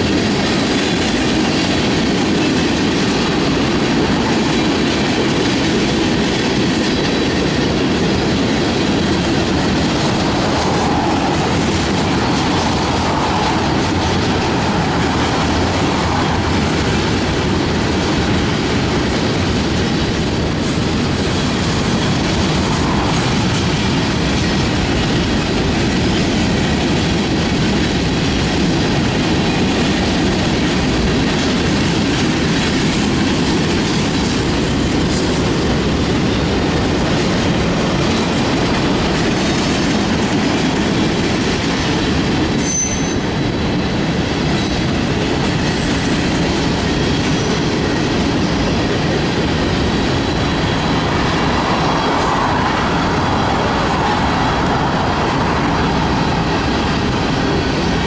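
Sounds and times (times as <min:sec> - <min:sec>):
steel wheels on rail: 0:00.0 - 0:58.0.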